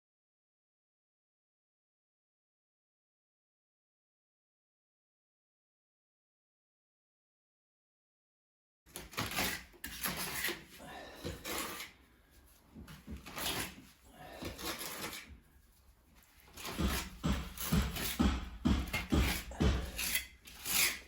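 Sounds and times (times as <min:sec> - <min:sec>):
scraping and rubbing strokes: 0:09.2 - 0:18.3, 0:19.0 - 0:21.0
knocks: 0:16.6 - 0:20.2.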